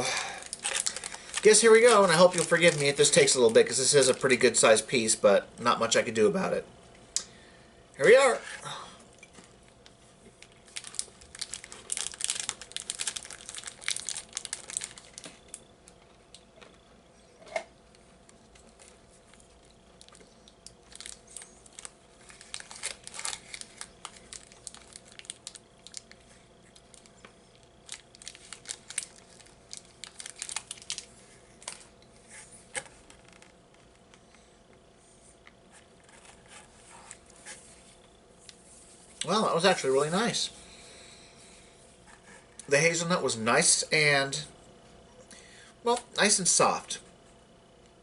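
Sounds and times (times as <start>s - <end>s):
crunchy chewing of wafer bar: 10.3s - 16.9s, 17.9s - 32.0s.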